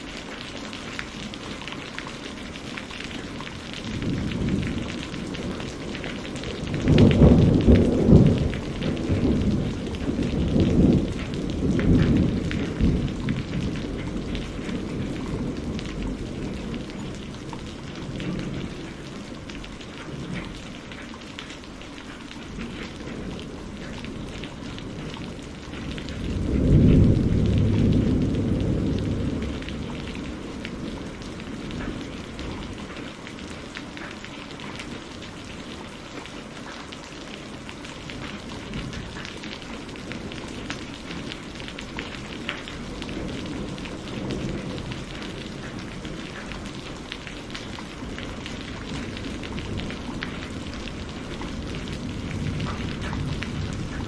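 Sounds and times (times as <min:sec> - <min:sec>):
thunder rumbling: 0:00.0 - 0:21.1, 0:22.4 - 0:34.0, 0:37.0 - 0:54.0
steady rain: 0:00.0 - 0:54.0.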